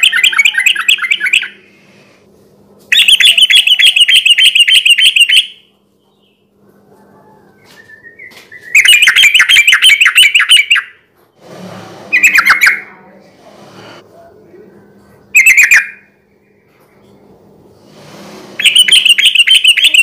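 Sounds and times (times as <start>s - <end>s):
bulbul singing: 0.0s - 1.7s, 2.9s - 6.5s, 7.9s - 11.0s, 15.3s - 16.7s, 18.6s - 20.0s.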